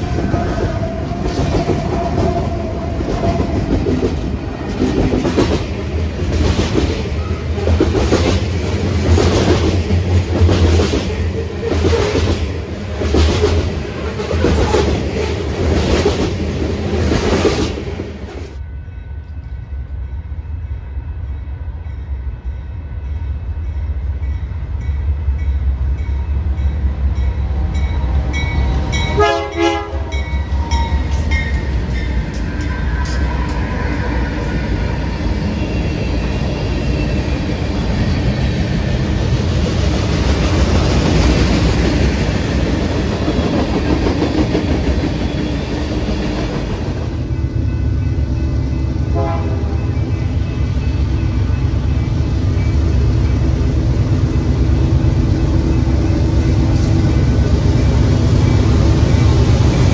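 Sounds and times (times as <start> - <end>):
train wheels clicking over rails: 0.0 - 18.6, 30.5 - 47.2
train engine drone: 0.0 - 59.9.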